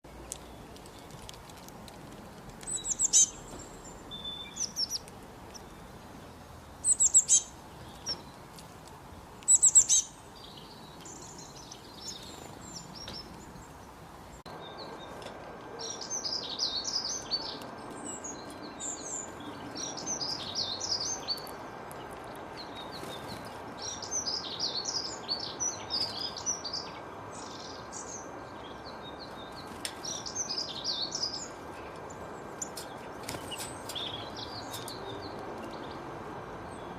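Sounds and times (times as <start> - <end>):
canary singing: 2.6 - 8.4, 9.4 - 13.9.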